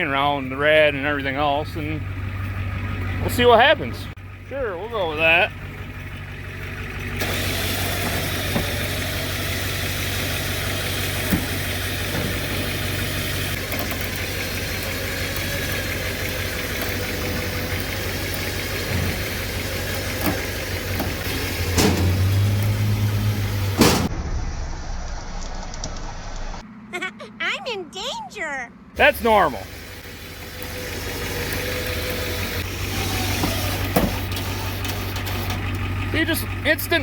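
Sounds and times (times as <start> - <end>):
engine running under load: 0.0 - 26.9, 28.7 - 37.0
clanks and knocks: 10.7 - 24.1, 31.5 - 35.9
loud bangs: 18.7 - 25.4.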